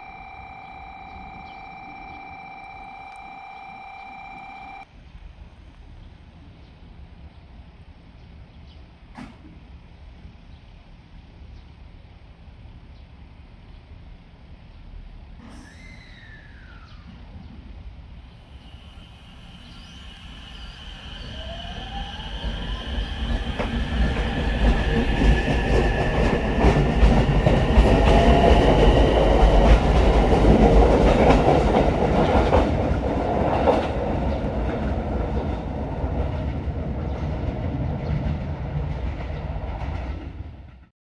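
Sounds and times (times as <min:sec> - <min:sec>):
thin whine: 0:00.0 - 0:04.9
railcar rumble: 0:00.0 - 0:40.9.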